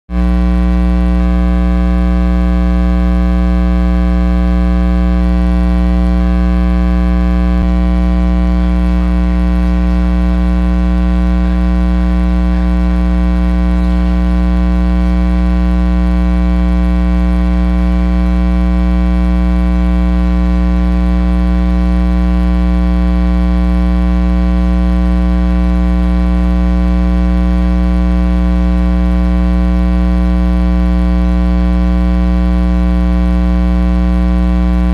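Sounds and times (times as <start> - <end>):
electrical mains hum: 3.8 - 24.0, 34.2 - 34.9.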